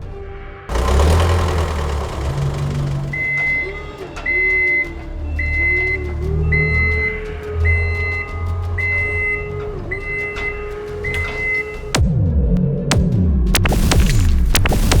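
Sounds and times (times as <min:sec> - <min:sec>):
cartoon engine hum: 0:00.7 - 0:03.5.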